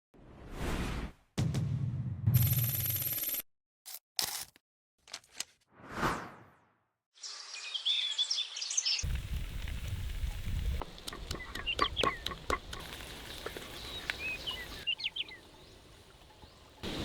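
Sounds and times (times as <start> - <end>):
birds chirping: 7.2 - 9.1, 10.2 - 17.0
outdoor background noise: 9.0 - 17.0
scattered clicks: 10.8 - 13.0.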